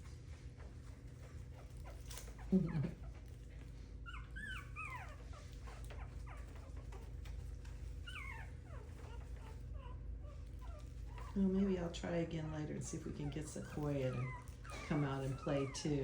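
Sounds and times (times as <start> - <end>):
puppies whining and yipping: 0.0 - 16.0.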